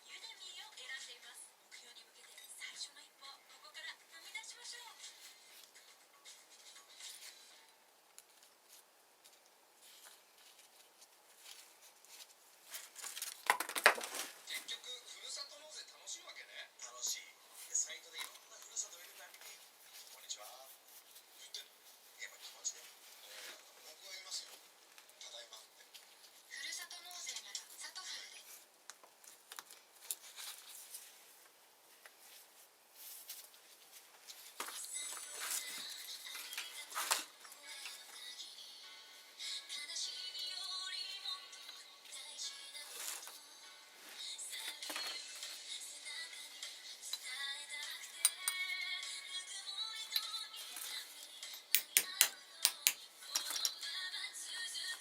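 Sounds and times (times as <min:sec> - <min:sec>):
taps and scrapes of small tools: 0:51.5 - 0:53.8.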